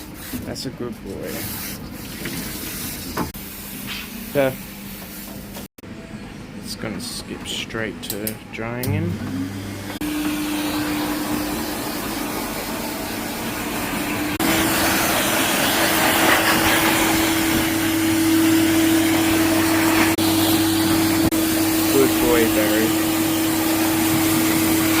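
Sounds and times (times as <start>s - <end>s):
blow dryer motor whine: 8.8s - 25.0s.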